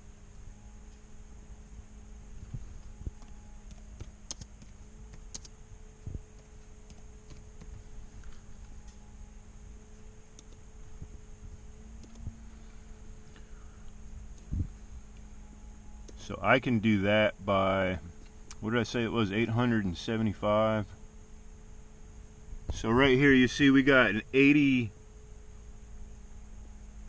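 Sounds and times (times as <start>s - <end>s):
low steady hum: 0.0s - 27.0s
computer key and mouse clicks: 3.2s - 5.5s, 12.0s - 12.3s.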